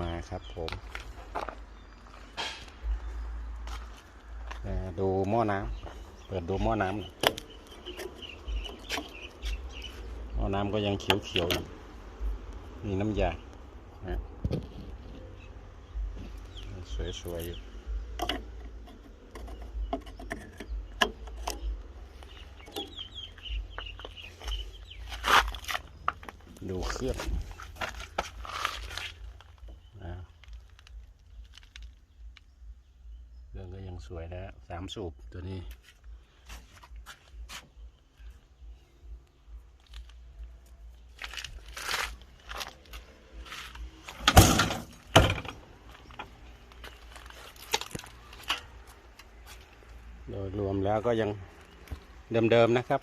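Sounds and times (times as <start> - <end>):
bird calling: 5.5 - 11.6, 18.3 - 27.6
sheet-metal door clattering: 44.2 - 45.6
loud metal bangs: 44.2 - 45.7.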